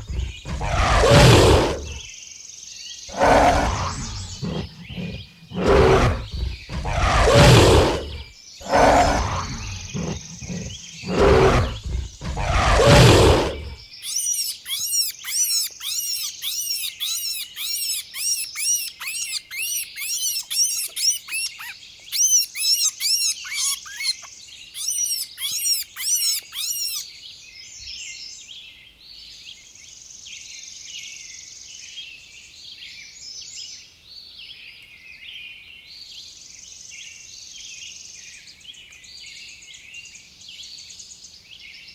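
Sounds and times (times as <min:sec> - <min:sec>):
bird chirping quickly: 0:00.0 - 0:02.1, 0:03.1 - 0:27.1
large animal roaring: 0:00.0 - 0:02.1, 0:03.1 - 0:13.8
birds and insects: 0:00.0 - 0:33.6.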